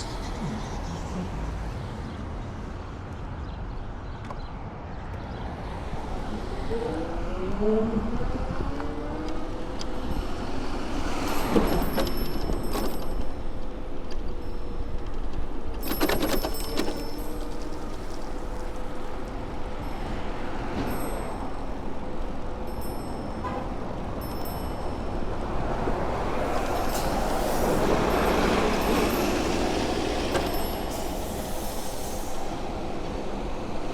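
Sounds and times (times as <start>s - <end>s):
city street traffic rumble: 0.0s - 33.9s
wind: 0.0s - 33.9s
bicycle rattling clatters: 11.1s - 19.2s.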